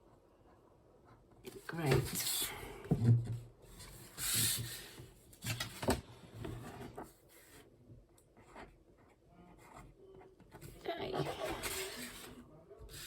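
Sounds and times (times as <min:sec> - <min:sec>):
pen scratching on paper: 0:08.4 - 0:10.0.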